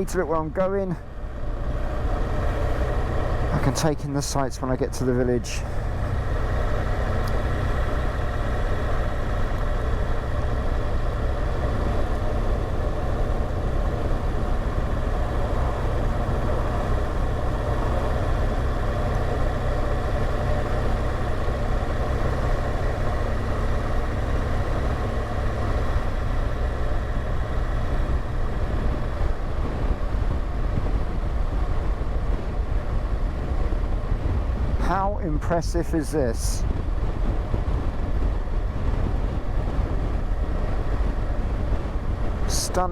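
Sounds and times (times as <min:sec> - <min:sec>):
rush of air and road noise: 0:00.0 - 0:42.9
motorcycle engine running: 0:05.0 - 0:35.5.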